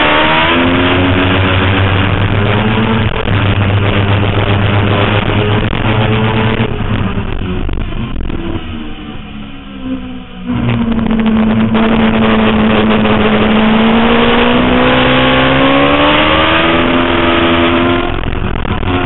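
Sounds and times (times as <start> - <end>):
motorcycle engine at high revs: 0.0 - 9.0, 10.5 - 19.0
wind rush: 10.5 - 19.0.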